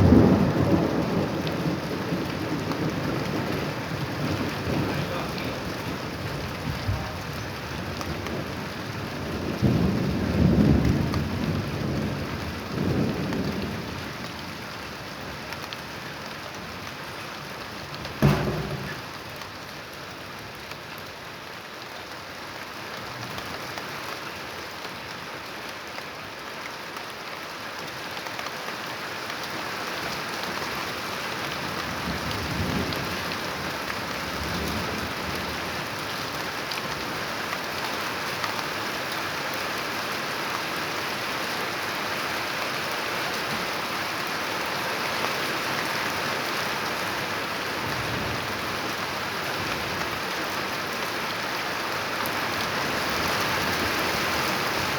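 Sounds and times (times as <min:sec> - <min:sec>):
thunder rumbles: 0:00.0 - 0:14.3, 0:17.9 - 0:19.7
rain falling: 0:00.0 - 0:54.9.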